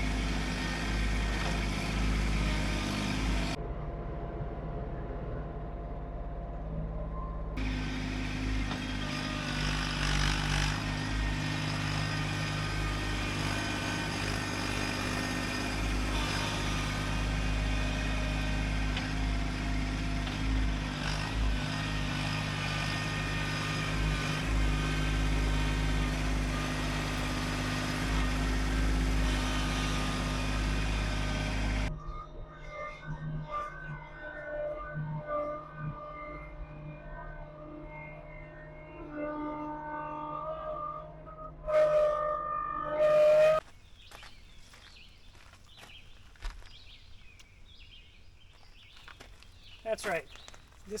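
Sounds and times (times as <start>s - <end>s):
tractor diesel engine running: 0.0s - 6.3s, 7.6s - 31.9s, 48.8s - 51.0s.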